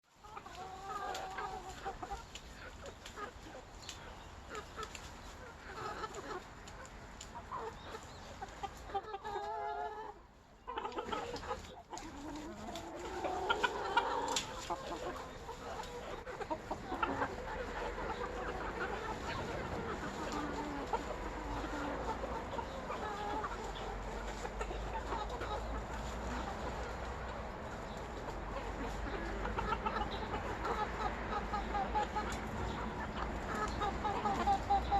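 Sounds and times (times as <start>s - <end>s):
chickens clucking: 0.1s - 34.9s.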